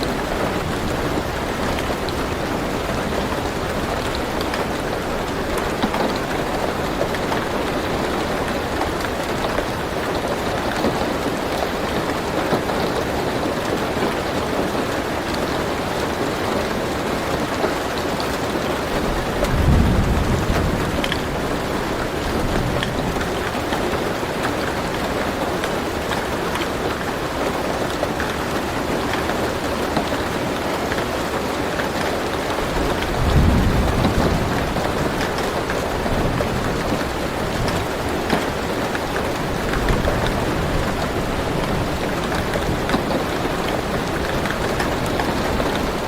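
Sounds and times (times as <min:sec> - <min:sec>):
rain drumming on a car roof: 0:00.0 - 0:46.0
low rumble of thunder: 0:19.0 - 0:23.8, 0:32.6 - 0:38.6.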